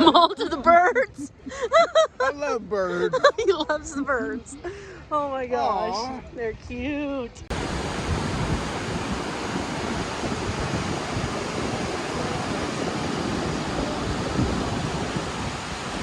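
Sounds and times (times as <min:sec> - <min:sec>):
wind buffeting microphone: 0:06.2 - 0:16.0.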